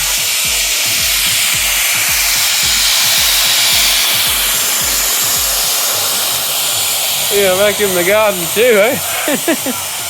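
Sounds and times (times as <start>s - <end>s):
background music with a beat: 0.0s - 10.0s
vacuum cleaner running: 0.0s - 10.0s.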